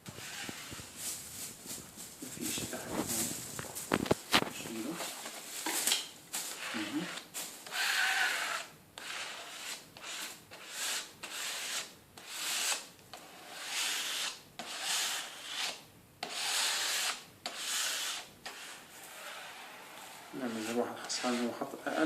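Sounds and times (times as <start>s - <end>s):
plastic card scraping puzzle: 0.0s - 1.0s.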